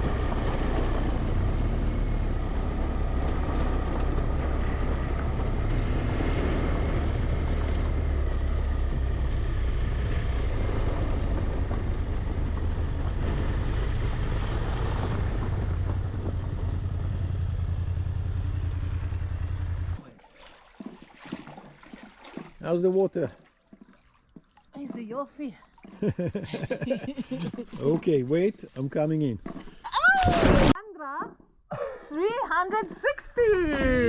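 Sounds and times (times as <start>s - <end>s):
wind rumble on microphone: 0.0s - 17.7s
motorcycle engine running: 0.0s - 20.0s.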